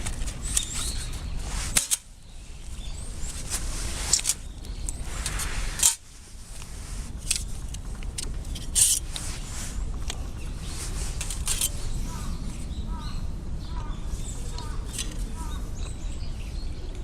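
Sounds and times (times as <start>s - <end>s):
short clicks and scrapes: 0.0s - 2.1s, 3.2s - 10.2s, 10.8s - 11.8s
steady low rumble: 0.0s - 17.0s.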